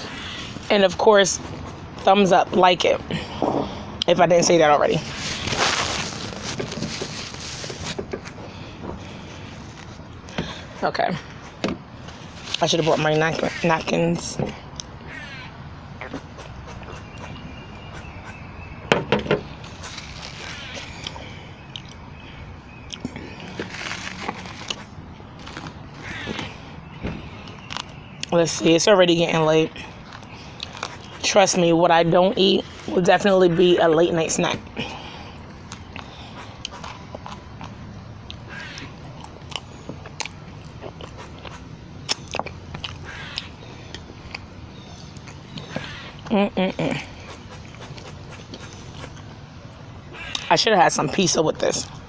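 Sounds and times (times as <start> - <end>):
steady low background noise: 0.0 - 52.0
crunchy rustles: 5.0 - 13.6, 19.5 - 21.2, 23.3 - 26.6
person biting and chewing food: 19.6 - 22.0, 22.9 - 26.4, 27.4 - 28.3, 35.6 - 44.5, 47.2 - 49.3.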